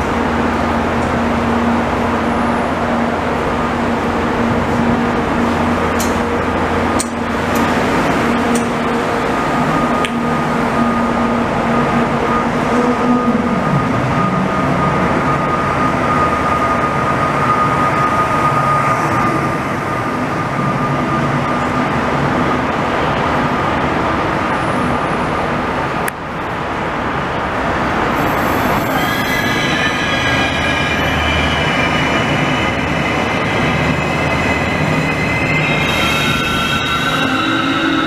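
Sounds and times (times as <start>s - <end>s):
steady train whine: 0.0s - 38.0s
train wheels rumbling on rail: 0.0s - 38.0s
high-pitched wheel squeal: 28.1s - 38.0s.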